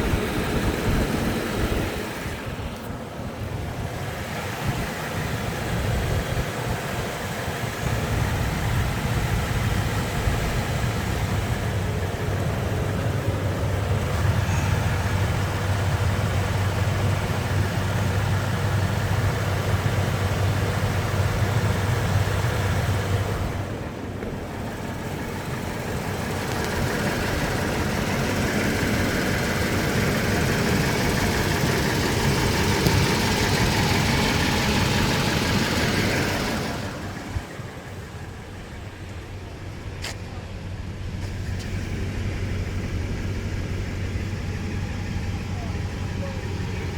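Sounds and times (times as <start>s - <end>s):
truck engine idling: 0.0s - 46.9s.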